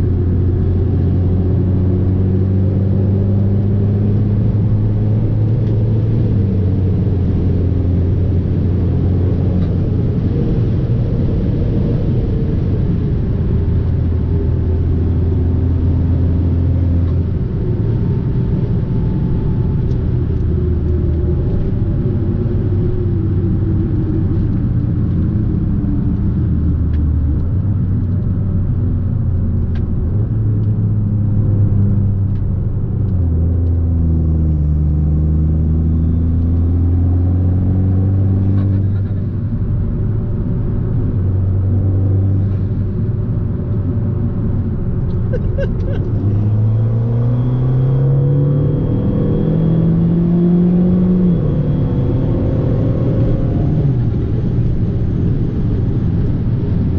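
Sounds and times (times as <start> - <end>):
car engine accelerating: 0.0 - 56.9.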